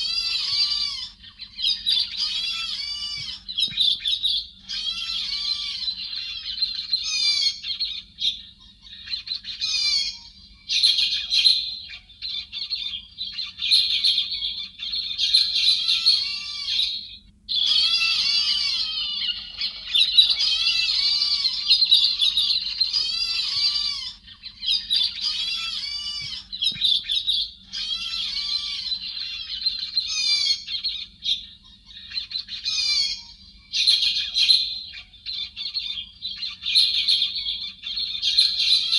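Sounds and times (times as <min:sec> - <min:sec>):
faint low hum: 0:00.0 - 0:38.9.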